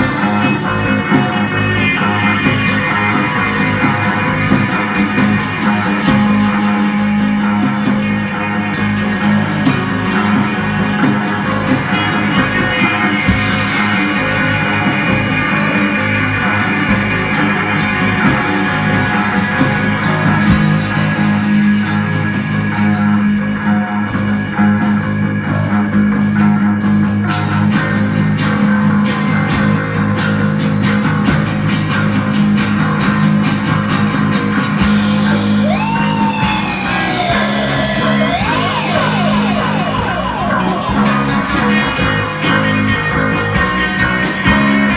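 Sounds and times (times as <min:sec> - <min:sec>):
high sliding guitar line: 0:00.0 - 0:44.9
rock band playing live: 0:00.0 - 0:44.9.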